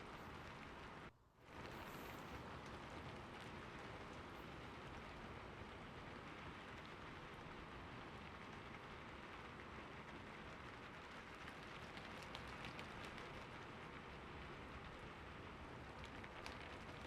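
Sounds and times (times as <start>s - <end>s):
faint raindrop ticks: 0.0s - 17.0s
steady rain hiss: 0.0s - 17.0s.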